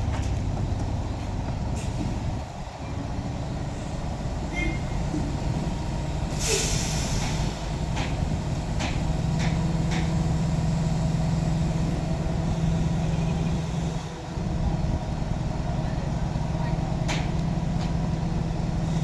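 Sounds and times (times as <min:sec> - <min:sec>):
diesel truck engine running: 0:00.0 - 0:19.0
short hiss of air: 0:06.3 - 0:07.6.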